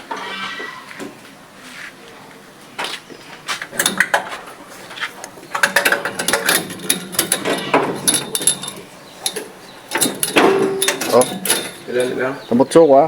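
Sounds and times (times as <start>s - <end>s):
hand tools clinking on metal: 5.6s - 12.4s.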